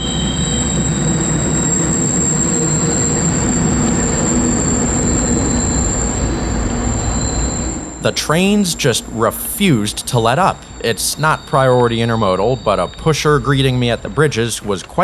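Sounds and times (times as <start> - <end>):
freight train passing: 0.0 - 15.0
high-pitched wheel squeal: 0.0 - 15.0.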